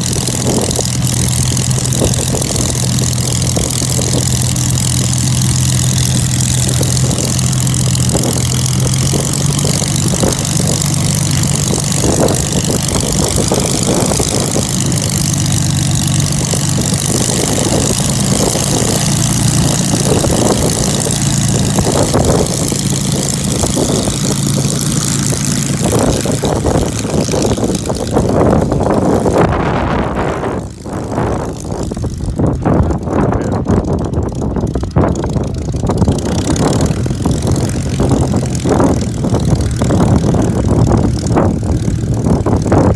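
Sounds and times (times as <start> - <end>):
piston aircraft engine humming: 0.0 - 42.9.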